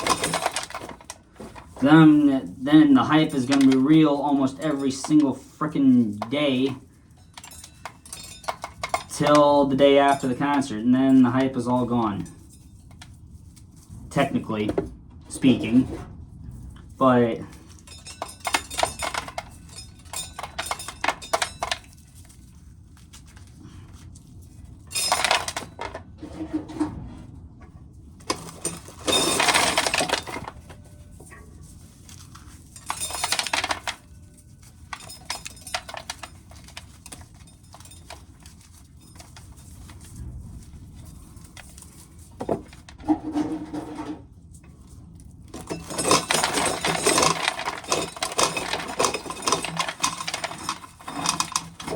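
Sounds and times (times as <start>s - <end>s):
corn kernels clicking and rattling: 0.0s - 11.9s, 28.2s - 43.0s, 44.8s - 51.9s.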